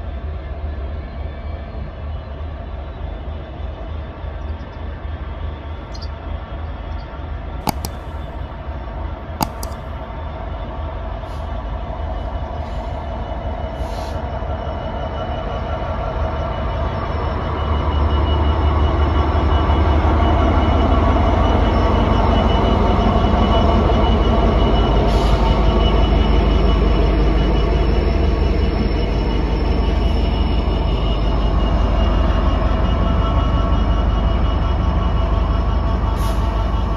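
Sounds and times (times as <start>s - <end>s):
diesel locomotive engine rumbling: 0.0s - 36.9s
sharp clicks: 7.7s - 8.6s, 9.4s - 9.8s.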